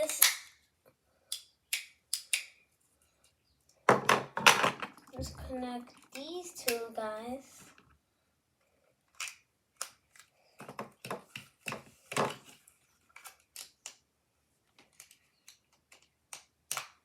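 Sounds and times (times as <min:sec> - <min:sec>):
plastic bricks clicking: 0:09.1 - 0:11.8, 0:14.8 - 0:17.0.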